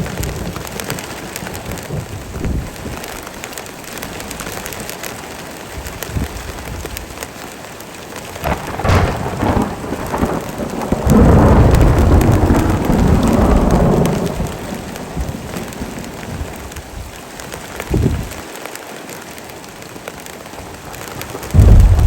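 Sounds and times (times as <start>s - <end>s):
heavy rain falling: 0.0s - 22.0s
thunder rumbling: 1.7s - 3.3s, 8.4s - 17.2s, 21.5s - 22.0s.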